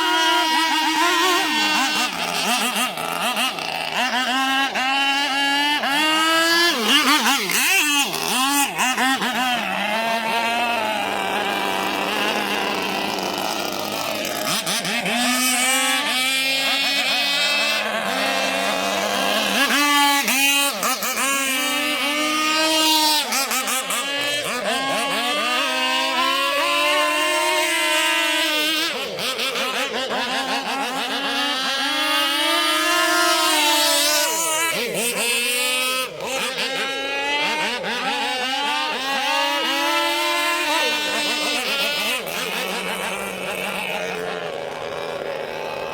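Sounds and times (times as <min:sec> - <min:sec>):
two-stroke engine buzzing: 0:00.0 - 0:45.9.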